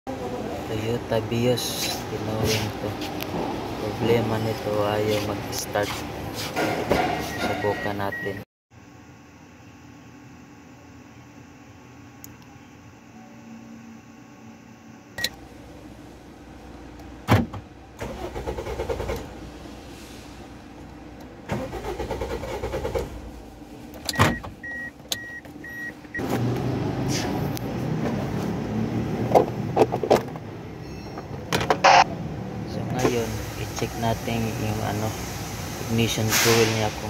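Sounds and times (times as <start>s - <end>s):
short beeps: 7.3s - 8.4s, 24.1s - 25.9s, 30.8s - 32.1s
starter cranking engine: 18.0s - 19.3s, 21.5s - 23.2s.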